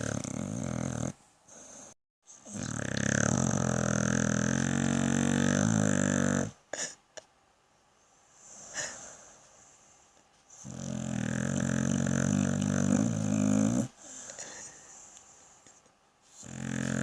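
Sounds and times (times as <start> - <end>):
dog snoring: 0.0 - 6.6, 10.5 - 14.2, 16.3 - 17.0.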